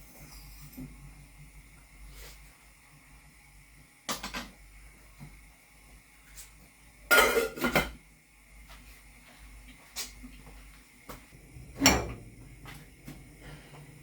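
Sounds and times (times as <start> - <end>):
kitchenware clattering: 7.1 - 8.0.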